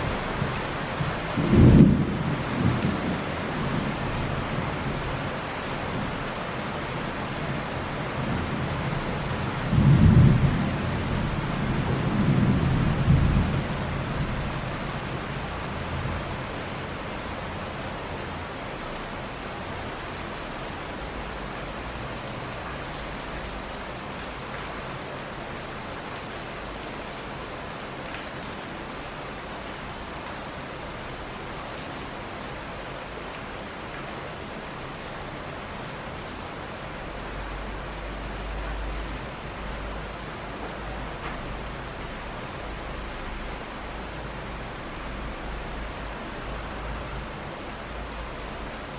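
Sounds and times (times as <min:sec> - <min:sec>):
steady rain: 0:00.0 - 0:48.9
rolling thunder: 0:00.1 - 0:03.9, 0:09.7 - 0:14.4.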